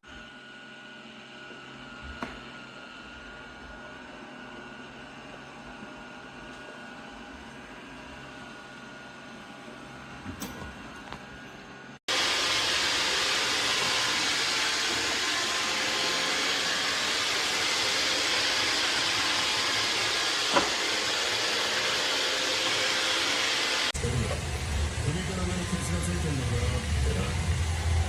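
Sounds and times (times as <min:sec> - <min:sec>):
robot vacuum running: 0:12.1 - 0:28.0.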